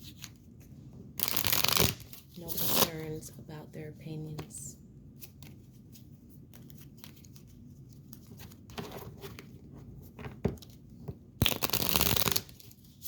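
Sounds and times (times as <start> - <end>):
cards being shuffled: 0.0 - 2.9, 5.2 - 9.6, 10.6 - 13.0.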